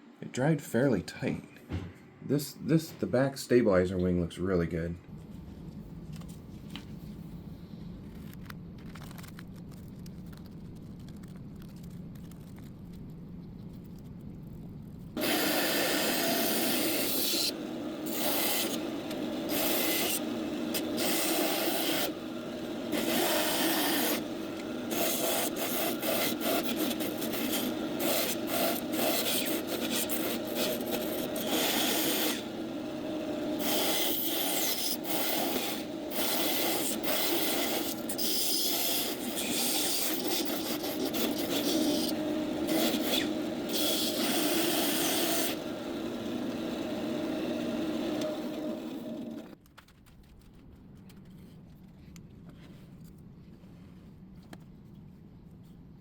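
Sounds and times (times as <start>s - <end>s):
hand tool scraping small part: 33.6s - 45.6s.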